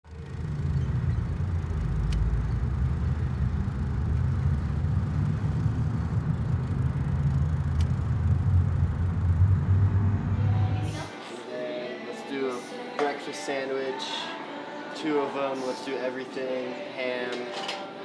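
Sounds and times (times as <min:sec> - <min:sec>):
car road and engine noise: 0:00.1 - 0:11.2.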